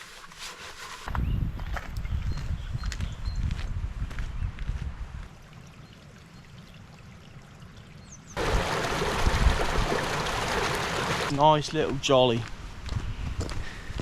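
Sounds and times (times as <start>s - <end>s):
stream rushing: 8.4s - 11.4s.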